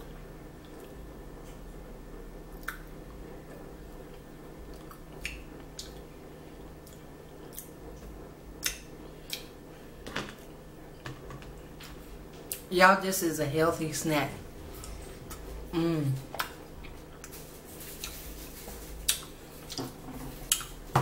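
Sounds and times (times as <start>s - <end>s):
steady low hum: 0.0s - 21.0s
person chewing food: 4.7s - 6.1s, 6.8s - 7.7s, 16.2s - 19.8s, 20.4s - 20.8s.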